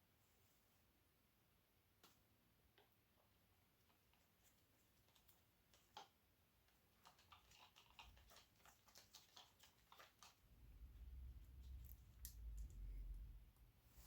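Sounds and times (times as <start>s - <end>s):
faint small clicks and ticks: 3.8s - 13.3s
low rumble: 10.5s - 14.0s.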